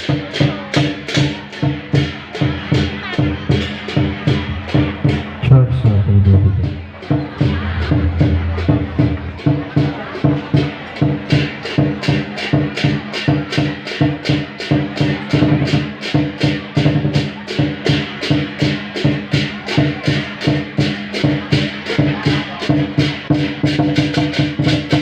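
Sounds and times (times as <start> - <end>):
bamboo and drum percussion ensemble: 0.0 - 25.0
held low tones: 7.5 - 9.7.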